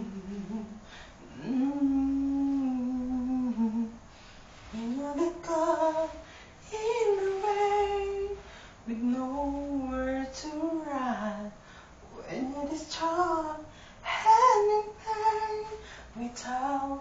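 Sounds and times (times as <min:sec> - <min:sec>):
woman humming: 0:00.0 - 0:03.9.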